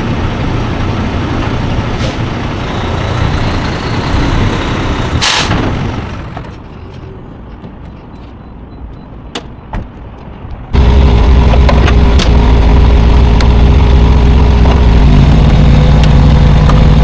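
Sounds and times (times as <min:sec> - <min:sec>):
truck diesel engine rumbling: 0:00.0 - 0:07.6, 0:10.7 - 0:17.0
air brake hiss: 0:05.2 - 0:05.6.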